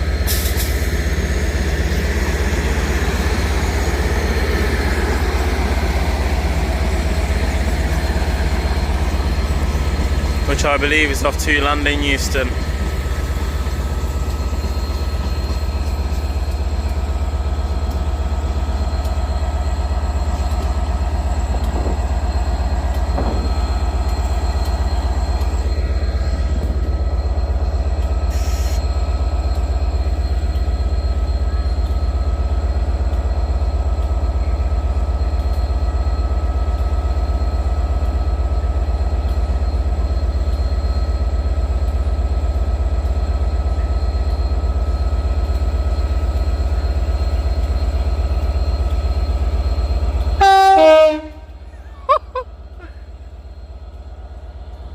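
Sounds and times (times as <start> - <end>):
train low hum: 0.0 - 54.9.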